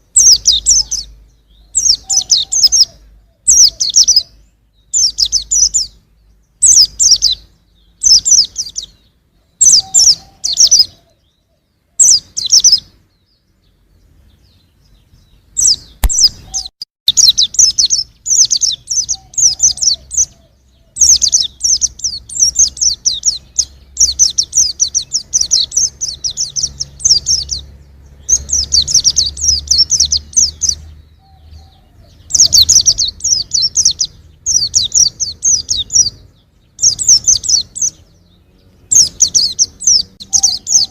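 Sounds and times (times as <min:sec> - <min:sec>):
bird high-pitched twittering: 0:00.0 - 0:40.9.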